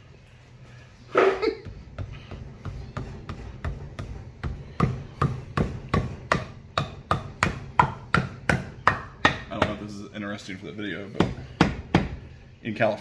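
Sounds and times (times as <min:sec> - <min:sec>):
hammer pounding a bolt: 0:01.7 - 0:09.8, 0:11.2 - 0:12.3.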